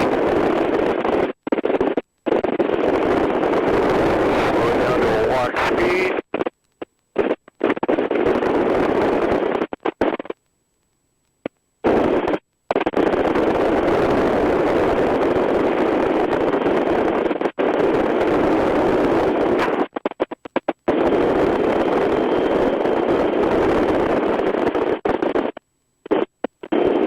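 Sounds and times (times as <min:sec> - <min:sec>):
helicopter rotor and wind noise: 0:00.0 - 0:06.5, 0:11.9 - 0:25.6.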